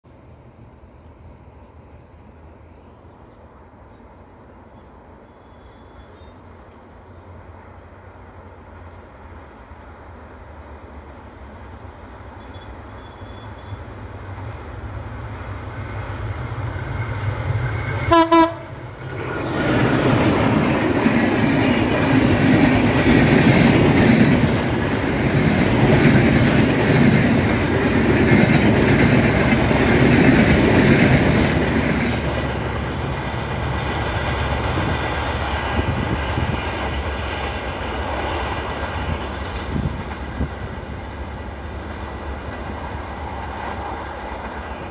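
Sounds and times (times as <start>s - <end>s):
train wheel and rail noise: 0.0s - 44.9s
train horn blast: 18.0s - 18.8s.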